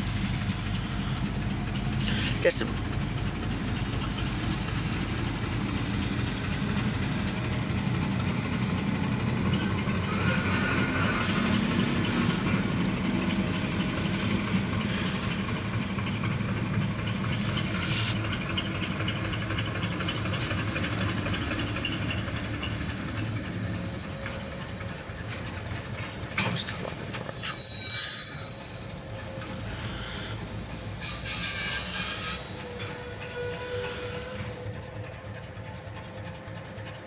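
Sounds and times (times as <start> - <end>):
freight train rolling past: 0.0 - 37.0.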